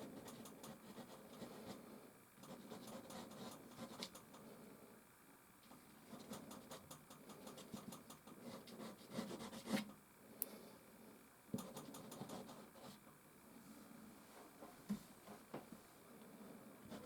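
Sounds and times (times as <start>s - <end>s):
pastel scratching on canvas: 7.6s - 9.9s.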